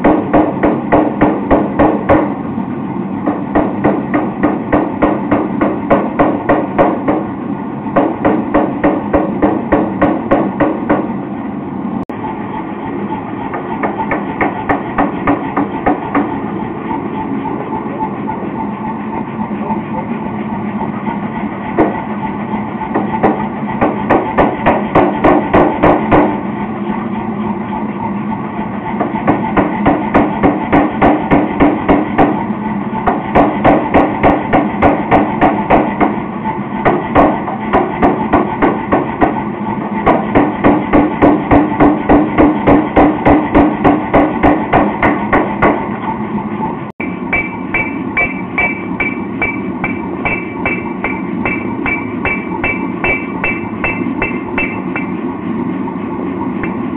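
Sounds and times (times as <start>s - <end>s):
hammer ringing on anvil: 47.0s - 55.2s.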